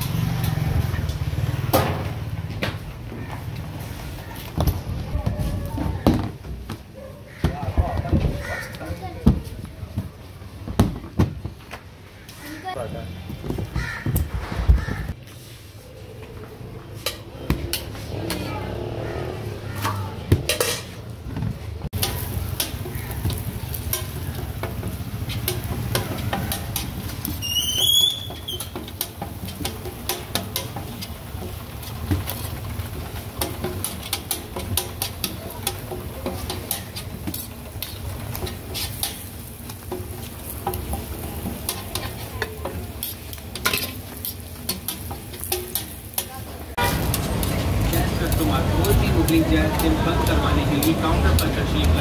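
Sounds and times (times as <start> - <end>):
metal utensils tapping a griddle: 17.0 - 18.5, 19.8 - 21.0, 22.0 - 52.0
flatbread sizzling in oil: 22.0 - 52.0.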